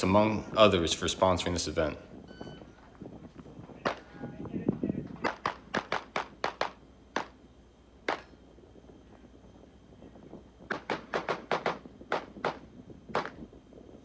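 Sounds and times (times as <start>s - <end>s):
pistol gunshots: 3.6s - 4.3s, 5.0s - 7.4s, 8.0s - 8.4s, 10.7s - 13.4s.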